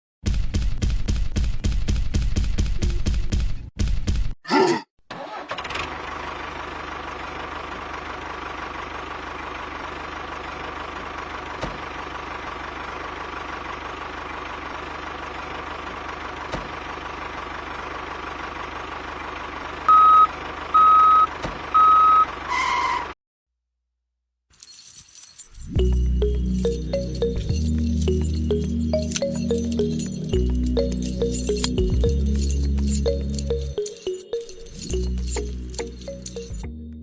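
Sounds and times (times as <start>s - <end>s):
tractor engine running: 5.1s - 22.5s, 25.8s - 36.7s
electronic reversing beeps: 19.9s - 22.3s.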